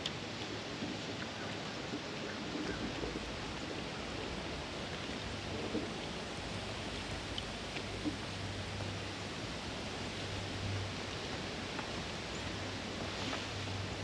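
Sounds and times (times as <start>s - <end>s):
river water rushing: 0.1s - 14.0s
faint ticks: 4.8s - 9.0s.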